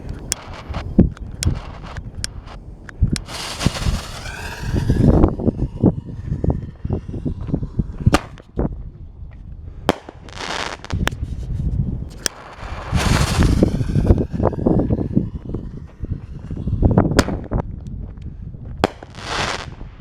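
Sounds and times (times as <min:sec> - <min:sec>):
firework bangs: 0:00.0 - 0:08.8, 0:12.0 - 0:17.8, 0:18.7 - 0:20.0
hissing crackle of fireworks: 0:00.0 - 0:08.8, 0:09.9 - 0:20.0
low rumble: 0:00.0 - 0:10.3, 0:11.0 - 0:19.0.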